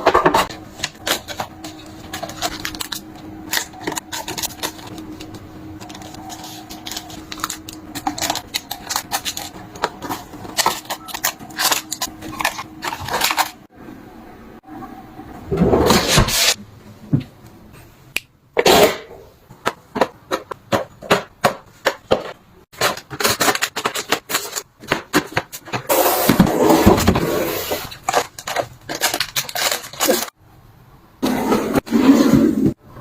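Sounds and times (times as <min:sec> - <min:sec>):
household items clicking and knocking: 0:19.6 - 0:27.2.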